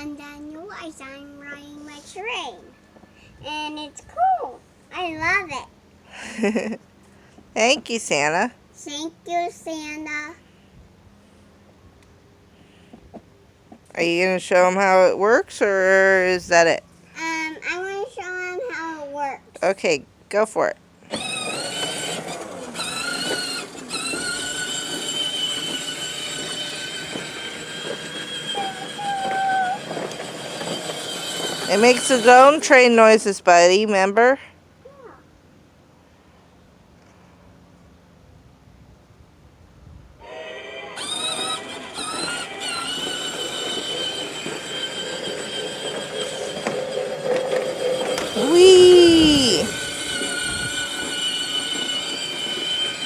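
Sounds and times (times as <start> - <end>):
wheels clicking and rattling: 21.0 - 33.4, 41.0 - 53.0
electric motor whining: 21.1 - 33.0, 40.2 - 53.0
electronic train whistle tone: 40.2 - 41.9.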